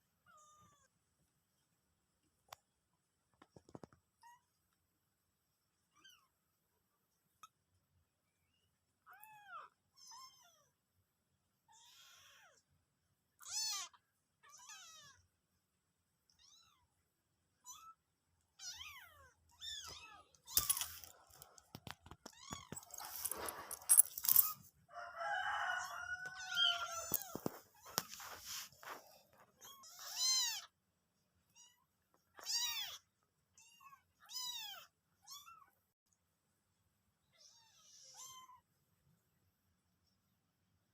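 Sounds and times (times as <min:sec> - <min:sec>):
cat meowing: 0:26.2 - 0:28.0.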